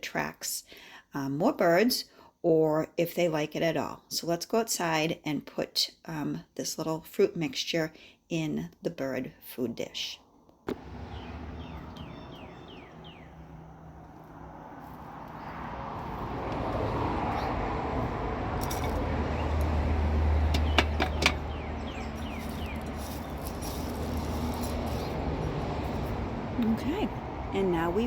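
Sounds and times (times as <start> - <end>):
birds chirping: 10.7 - 28.0.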